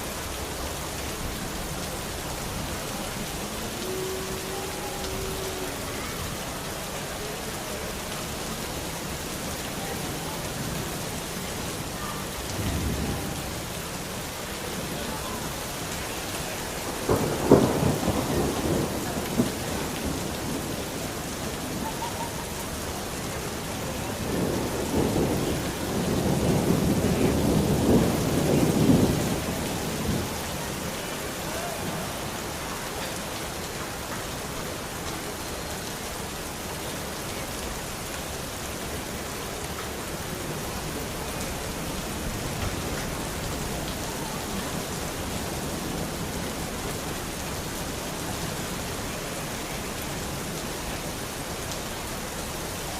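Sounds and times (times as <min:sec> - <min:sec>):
steady rain: 0:00.0 - 0:52.9
thunder rumbling: 0:12.4 - 0:14.2, 0:16.8 - 0:23.0, 0:23.7 - 0:31.4.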